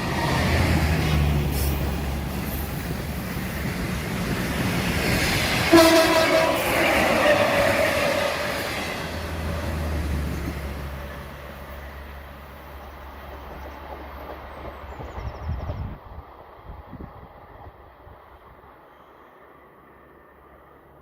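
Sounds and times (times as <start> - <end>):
train running on rails: 0.0 - 21.0
train horn: 5.6 - 9.2.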